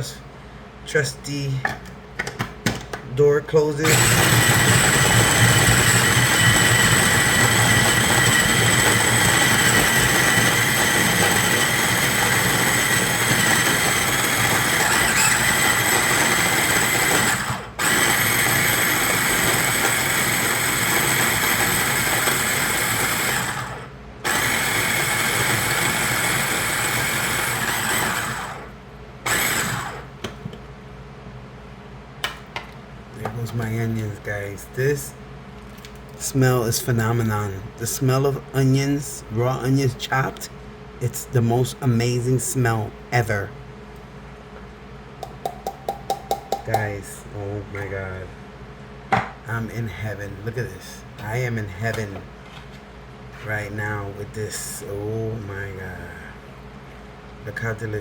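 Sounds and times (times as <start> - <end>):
food chopper motor whining: 3.8 - 30.3.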